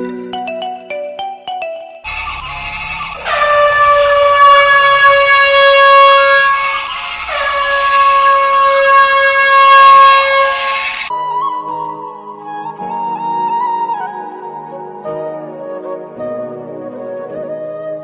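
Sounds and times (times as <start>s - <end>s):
long horn blasts: 3.2s - 11.1s.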